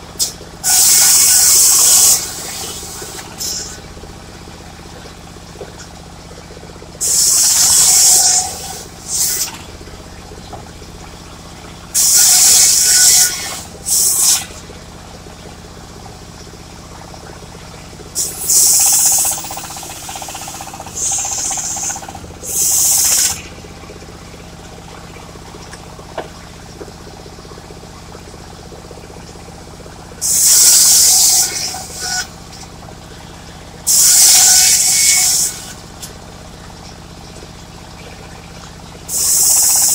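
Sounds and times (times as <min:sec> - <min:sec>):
sawmill engine running: 0:00.0 - 0:39.9
loud hissing bursts: 0:00.2 - 0:03.8, 0:07.0 - 0:09.5, 0:12.0 - 0:14.5, 0:18.2 - 0:23.4, 0:30.2 - 0:32.3, 0:33.9 - 0:35.7, 0:39.1 - 0:39.9.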